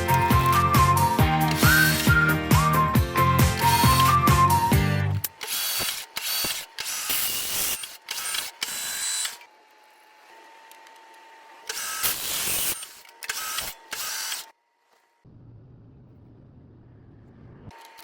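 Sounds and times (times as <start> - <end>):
lathe grinding bursts: 1.2 - 2.4, 5.3 - 9.4.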